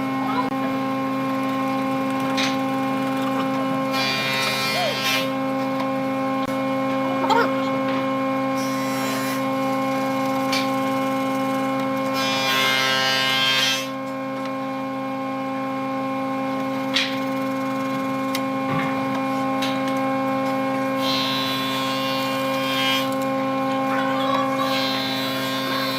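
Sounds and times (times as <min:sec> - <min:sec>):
lathe motor humming: 0:05.3 - 0:10.3.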